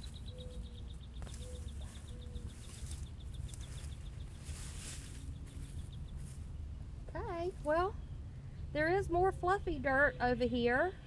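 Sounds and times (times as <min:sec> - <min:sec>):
short low bird calls: 0:00.0 - 0:06.3
bird trilling: 0:00.0 - 0:06.4
soil rustling: 0:00.0 - 0:06.6.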